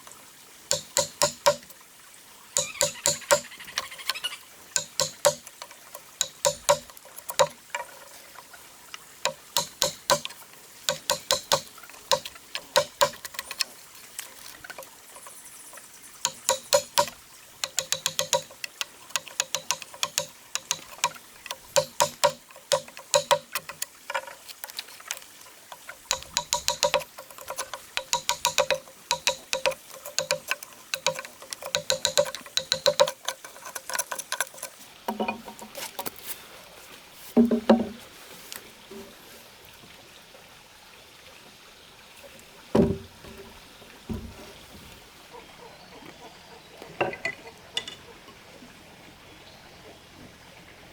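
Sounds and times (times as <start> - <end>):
hand tool knocking on wood: 0.7 - 1.6, 2.6 - 3.5, 4.8 - 7.6, 9.2 - 10.3, 10.9 - 13.2, 16.2 - 18.6, 19.2 - 23.8, 26.1 - 33.2, 37.4 - 38.0, 42.8 - 43.5, 44.1 - 44.4.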